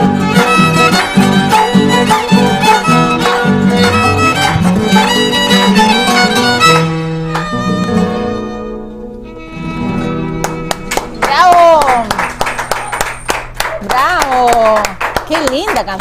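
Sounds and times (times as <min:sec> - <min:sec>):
violin melody: 0:00.0 - 0:12.7
plucked string accompaniment: 0:00.0 - 0:13.3.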